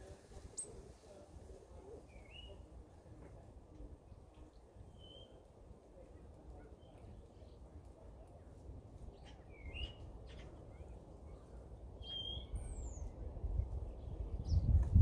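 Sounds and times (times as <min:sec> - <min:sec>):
small birds chirping: 0:04.0 - 0:05.5, 0:06.6 - 0:14.9.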